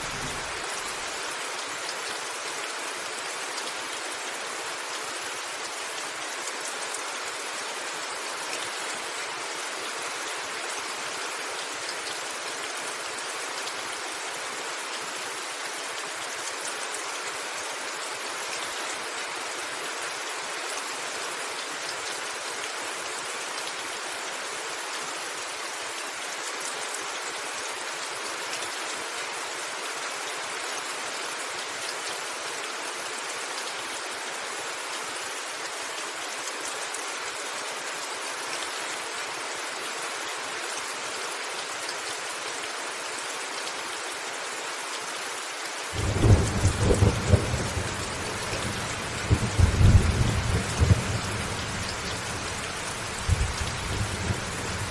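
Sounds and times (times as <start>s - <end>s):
thunder rumbling: 0.0s - 0.8s, 46.0s - 54.9s
heavy rain on a roof: 0.0s - 54.9s.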